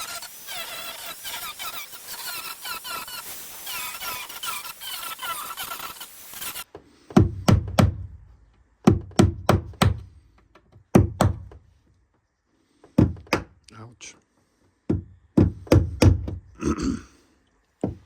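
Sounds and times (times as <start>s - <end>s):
grinding with high squeals: 0.0s - 6.7s.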